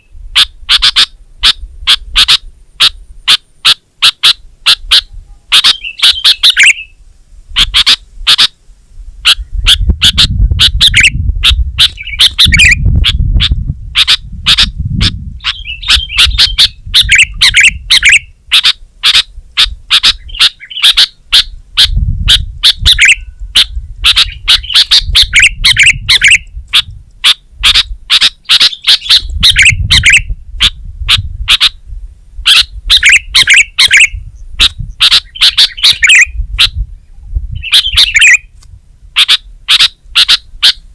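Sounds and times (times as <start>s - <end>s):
bird chirping and warbling: 0.0s - 8.5s, 9.2s - 31.8s, 32.4s - 38.6s, 39.2s - 40.8s.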